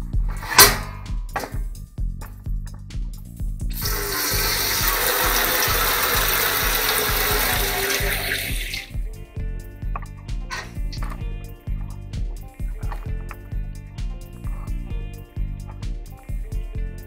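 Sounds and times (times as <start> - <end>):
water running from faucet: 3.7 - 9.0.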